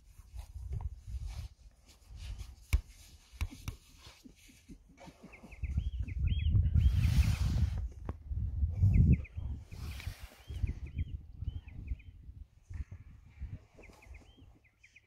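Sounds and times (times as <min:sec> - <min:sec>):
small bird chirping: 0:05.0 - 0:07.4, 0:08.8 - 0:12.4, 0:13.5 - 0:15.0
low gusty rumbling: 0:05.8 - 0:13.7.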